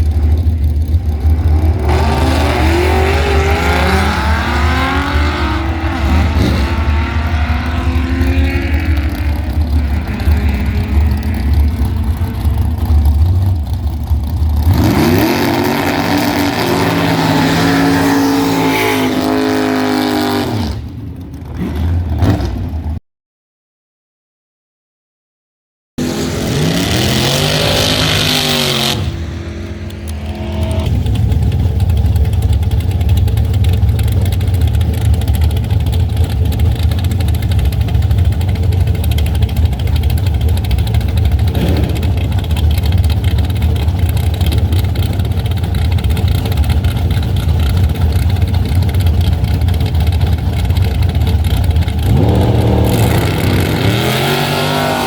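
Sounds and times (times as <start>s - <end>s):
low engine rumble: 0.0s - 17.4s, 29.0s - 54.2s
drag car engine revving: 0.0s - 22.8s, 26.0s - 55.0s.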